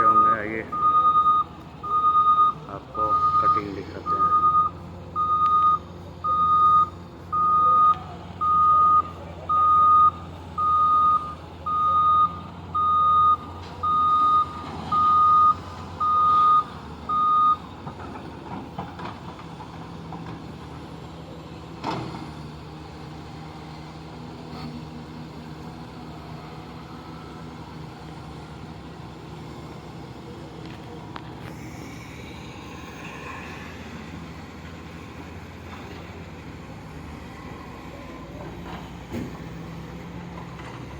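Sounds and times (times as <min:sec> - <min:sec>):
reversing alarm beeping: 0:00.0 - 0:17.6
diesel engine running: 0:00.0 - 0:40.9.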